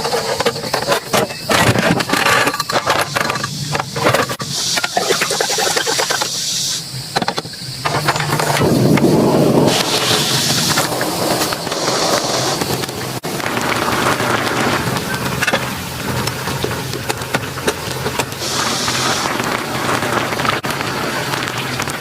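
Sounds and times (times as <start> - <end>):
heavy rain falling: 6.1 - 22.0.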